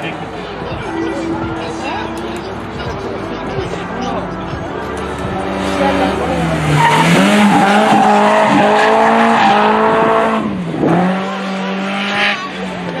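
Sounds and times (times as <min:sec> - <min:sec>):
car engine at high revs: 0:00.0 - 0:13.0
tyres squealing: 0:06.4 - 0:09.9.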